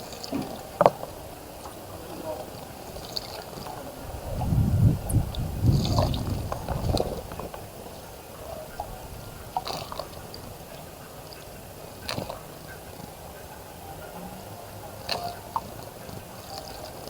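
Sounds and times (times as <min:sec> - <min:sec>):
bird splashing in water: 0:00.0 - 0:17.0
water drips: 0:00.0 - 0:17.0.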